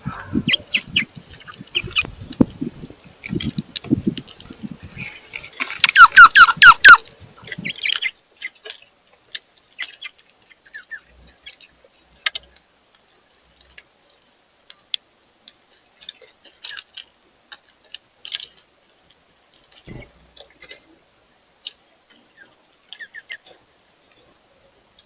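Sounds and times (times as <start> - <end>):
birds chirping: 0.0 - 15.0, 21.6 - 25.0.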